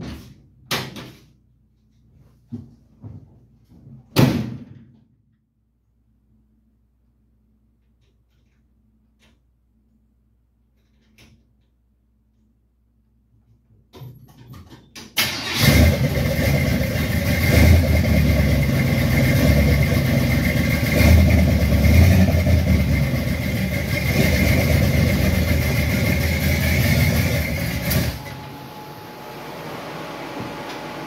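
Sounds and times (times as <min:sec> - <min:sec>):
truck engine cranking and running: 0:15.2 - 0:28.4.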